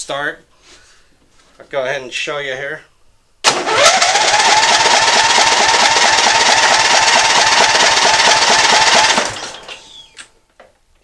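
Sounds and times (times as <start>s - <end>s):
starter whine: 3.4s - 10.2s
engine cranking: 3.5s - 9.8s.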